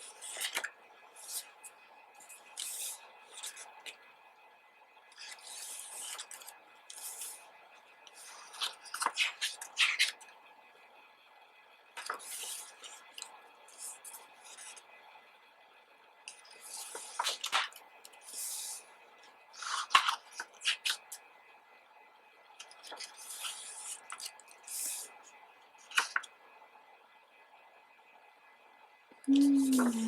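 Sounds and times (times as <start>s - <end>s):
book pages turning and rustling: 0.0s - 4.0s, 5.1s - 7.4s, 8.1s - 10.2s, 12.0s - 14.8s, 16.3s - 18.8s, 19.6s - 21.2s, 22.6s - 25.1s, 25.8s - 26.3s, 29.5s - 30.0s
paper crackles and taps: 22.6s - 25.0s, 25.8s - 26.3s.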